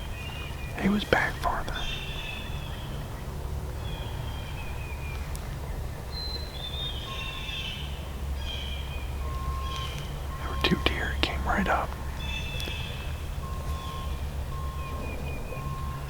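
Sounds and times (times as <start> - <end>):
songbirds singing: 0.0 - 16.0.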